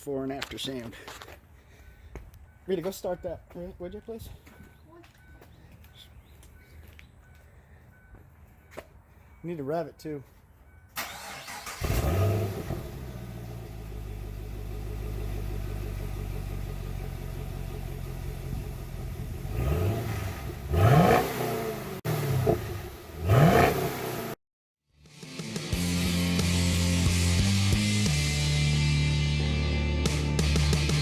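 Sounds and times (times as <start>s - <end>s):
car engine idling: 11.0s - 19.7s
car engine revving: 11.1s - 24.4s.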